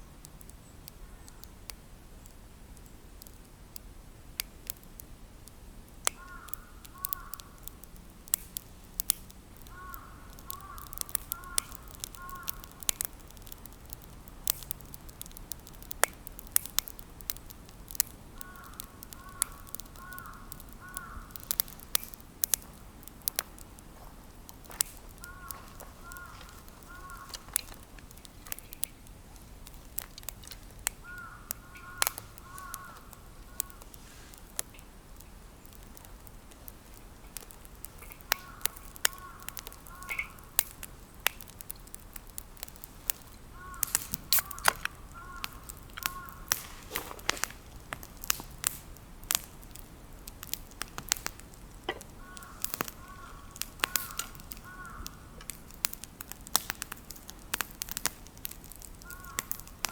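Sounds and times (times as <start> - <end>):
campfire crackling and popping: 0.0 - 59.9
bird calling: 9.7 - 12.6, 25.2 - 27.8, 31.0 - 33.8, 38.2 - 40.6, 43.5 - 47.4, 51.9 - 55.4, 59.0 - 59.5.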